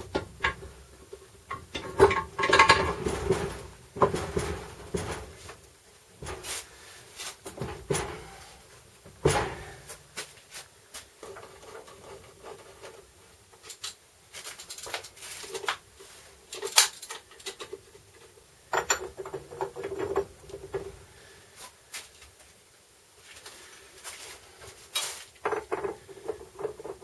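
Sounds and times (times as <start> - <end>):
metal tools clicking and scraping: 13.6 - 15.8, 16.5 - 20.2.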